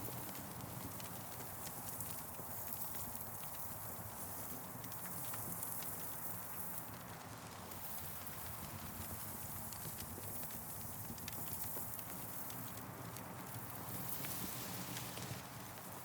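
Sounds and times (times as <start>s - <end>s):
campfire crackling and popping: 4.8s - 16.0s.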